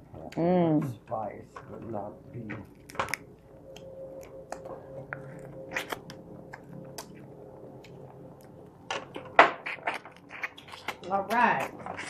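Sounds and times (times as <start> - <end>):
person chewing: 2.7 - 12.0
wet mouth and finger clicks: 5.7 - 7.2, 9.7 - 11.8.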